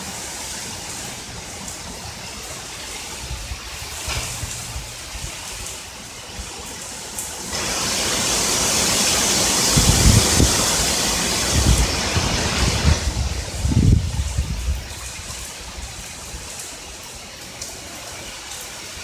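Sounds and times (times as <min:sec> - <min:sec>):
heavy rain: 0:00.0 - 0:19.0
low rumbles of thunder: 0:03.1 - 0:05.7, 0:09.7 - 0:16.0.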